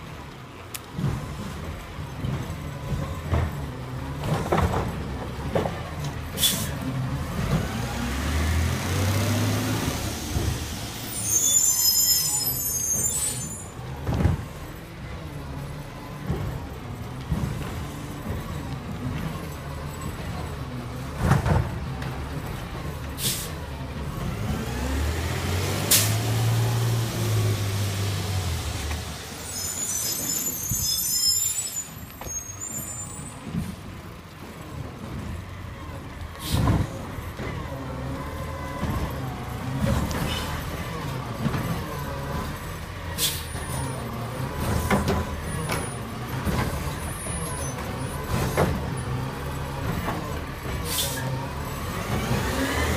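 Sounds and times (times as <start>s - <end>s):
garbage truck diesel engine: 0.0s - 52.9s
air-brake hisses: 6.4s - 6.8s, 23.2s - 23.6s, 36.4s - 36.7s, 43.2s - 43.5s, 50.9s - 51.3s
brief high squeal: 11.0s - 13.7s, 29.4s - 33.4s.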